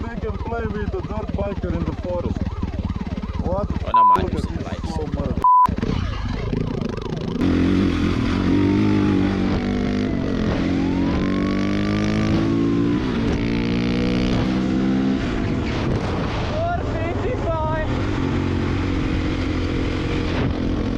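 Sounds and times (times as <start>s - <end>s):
siren wailing: 0.0s - 15.8s
dirt bike engine revving: 1.1s - 20.9s.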